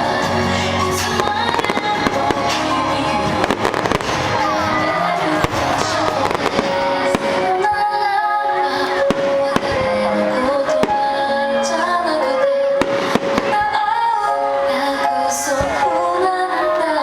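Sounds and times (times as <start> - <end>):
show music with singing: 0.0 - 17.0
fireworks bangs and crackles: 0.2 - 7.9, 9.0 - 10.0, 12.8 - 13.9.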